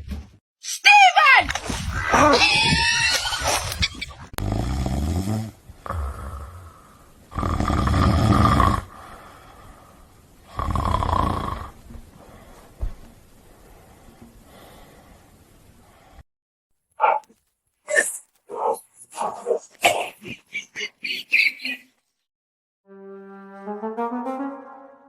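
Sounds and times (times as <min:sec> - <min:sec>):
dog snoring: 0:07.3 - 0:08.9, 0:10.5 - 0:11.8.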